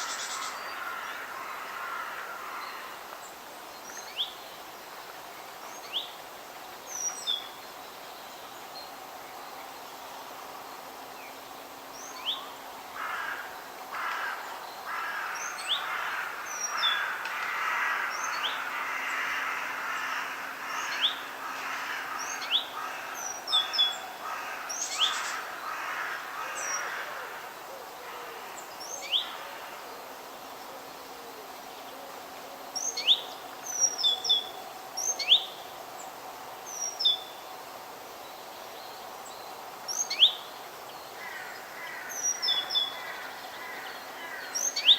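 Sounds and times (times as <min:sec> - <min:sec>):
soft hissy chattering: 0:19.8 - 0:42.5.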